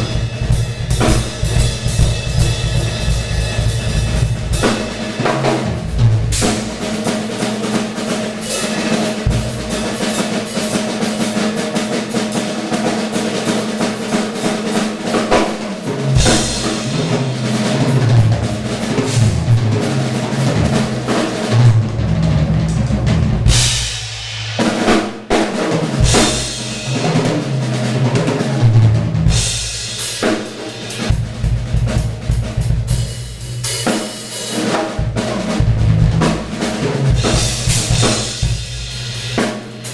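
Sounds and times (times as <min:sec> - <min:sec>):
drum kit fills: 0:00.0 - 0:39.9
heavy bass drum strokes: 0:00.0 - 0:39.9.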